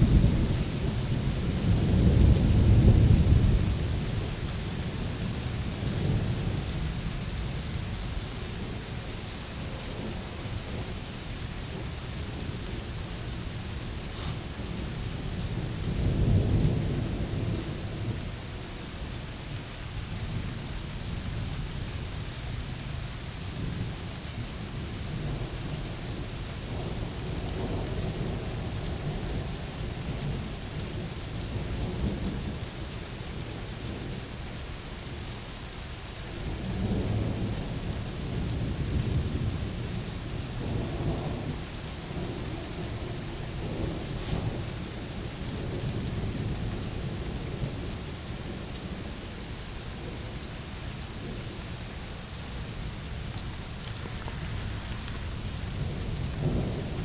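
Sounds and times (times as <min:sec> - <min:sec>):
rolling thunder: 0:00.0 - 0:07.0, 0:36.4 - 0:49.1, 0:54.0 - 0:57.0
rain hissing: 0:00.0 - 0:57.0.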